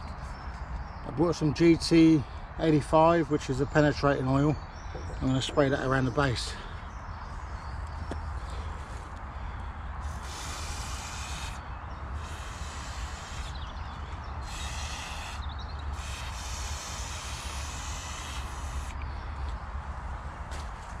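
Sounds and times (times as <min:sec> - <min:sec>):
aerosol can spraying: 0:10.0 - 0:11.6, 0:12.2 - 0:13.6, 0:14.4 - 0:19.0.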